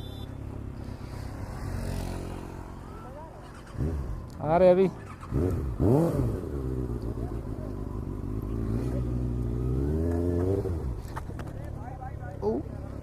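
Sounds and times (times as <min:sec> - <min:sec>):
motorcycle engine revving: 0:01.0 - 0:11.4.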